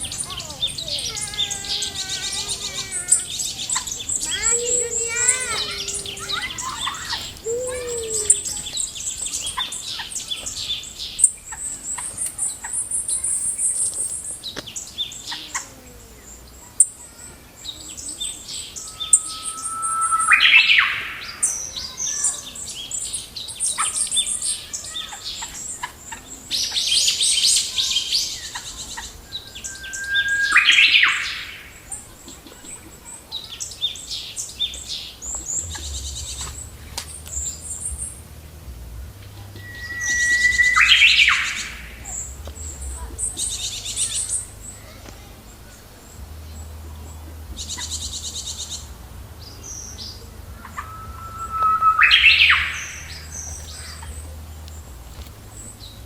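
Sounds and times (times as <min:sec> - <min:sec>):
wild birds chirping: 0:00.0 - 0:56.0
harsh rising bird call: 0:00.1 - 0:08.9, 0:18.7 - 0:21.6, 0:29.2 - 0:31.8, 0:39.6 - 0:42.2, 0:50.5 - 0:54.2.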